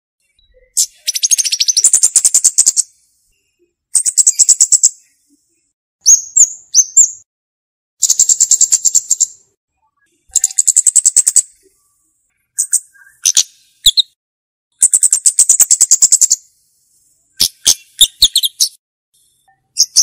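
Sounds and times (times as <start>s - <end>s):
bird ticking trills: 0.2s - 2.8s, 4.0s - 5.1s, 8.0s - 9.4s, 10.3s - 11.8s, 12.5s - 16.4s
bird chips: 0.6s - 2.9s, 8.0s - 9.4s, 10.3s - 11.6s, 17.4s - 18.8s.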